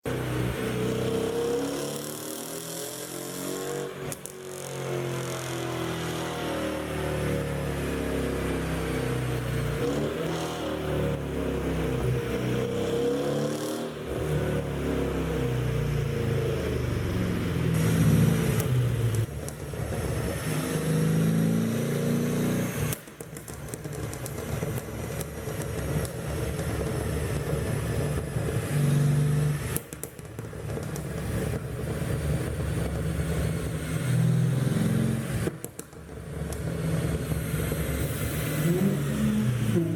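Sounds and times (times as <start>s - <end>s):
car engine revving: 0.1s - 23.0s, 23.8s - 39.9s
exhaust pops and crackles: 3.7s - 4.7s, 17.7s - 20.6s, 22.8s - 38.4s.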